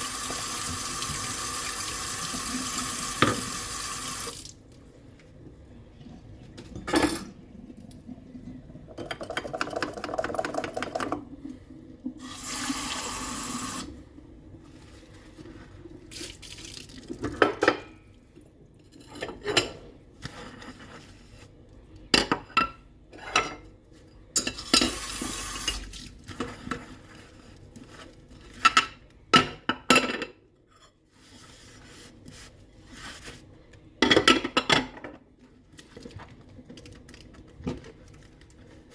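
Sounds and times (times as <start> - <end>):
tap water running: 0.0 - 4.7, 12.1 - 14.0, 24.9 - 26.0.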